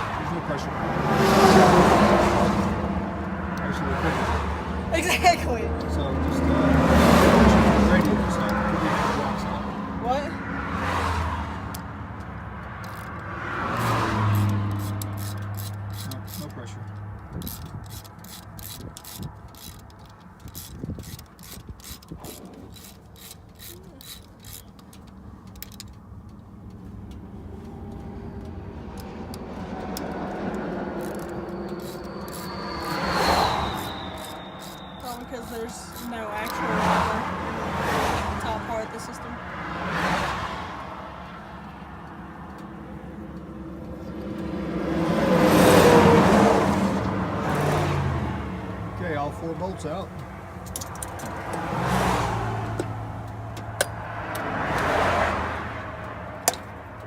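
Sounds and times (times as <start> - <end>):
vehicle passing by: 0.0 - 24.6, 27.0 - 57.0
socket ratchet clicking: 11.6 - 27.3, 27.9 - 36.6, 50.6 - 51.7, 56.0 - 57.0.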